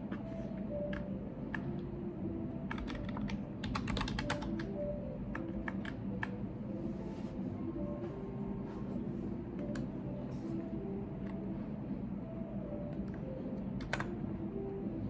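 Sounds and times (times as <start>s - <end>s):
low room hum: 0.0s - 15.0s
keyboard typing: 0.1s - 1.8s, 2.7s - 6.4s, 12.9s - 14.2s.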